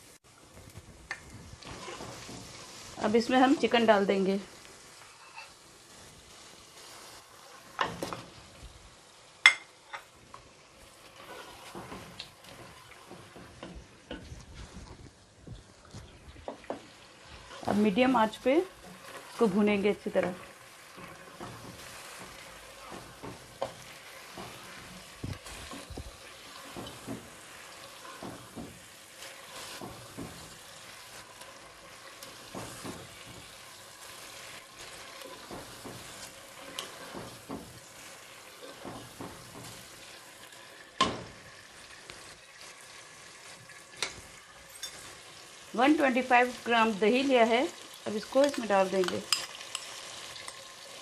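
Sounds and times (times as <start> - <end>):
chicken frying in oil: 0.0 - 51.0
spoon scraping and clacking: 44.0 - 45.2, 49.0 - 50.6.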